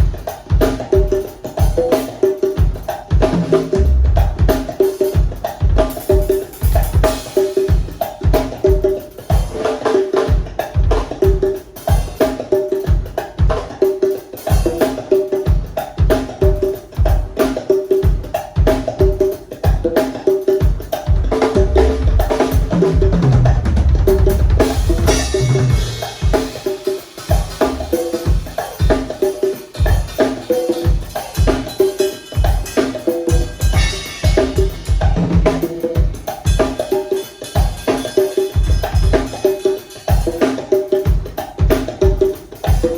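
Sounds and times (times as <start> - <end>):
drum kit groove: 0.0 - 42.9
ringing conga tones: 17.5 - 42.9.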